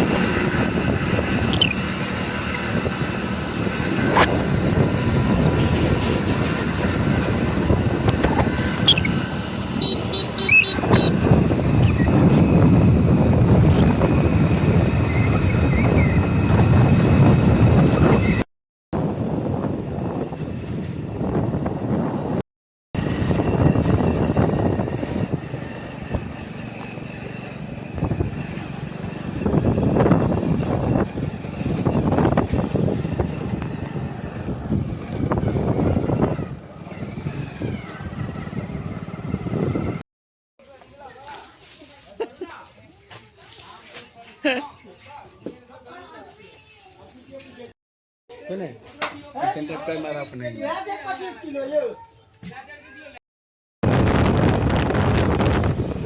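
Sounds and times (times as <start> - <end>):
road and wind noise: 0.0 - 22.4, 23.0 - 40.0, 53.8 - 56.0.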